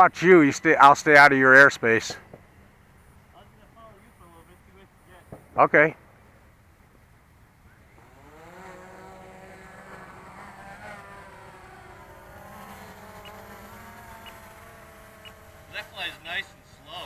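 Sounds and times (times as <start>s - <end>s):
model aircraft motor whine: 8.0s - 17.0s.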